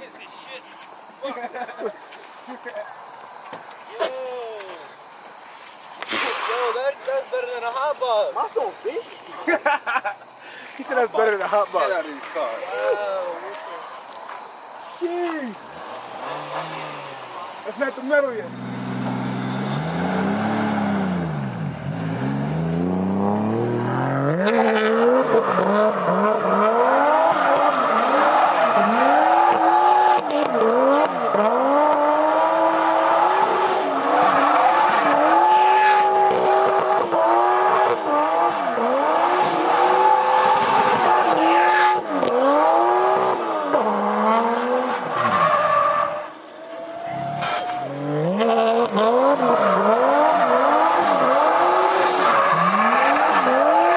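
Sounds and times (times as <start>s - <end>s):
car engine revving: 15.6s - 53.9s
tyres squealing: 24.3s - 37.8s.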